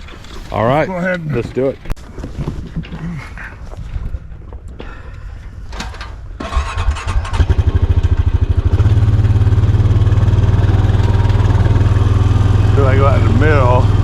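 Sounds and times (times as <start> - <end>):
atv engine starting and idling: 5.8 - 14.0.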